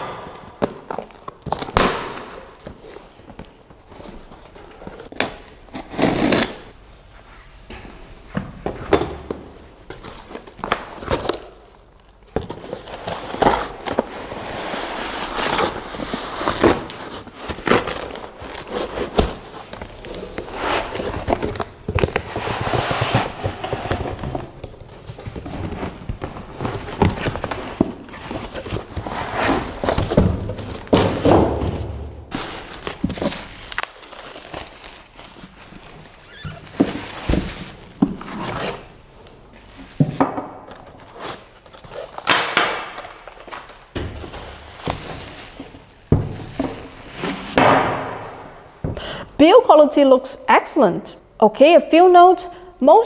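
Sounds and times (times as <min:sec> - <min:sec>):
packaging rustling: 0:09.9 - 0:31.3, 0:32.3 - 0:39.9, 0:40.7 - 0:47.6.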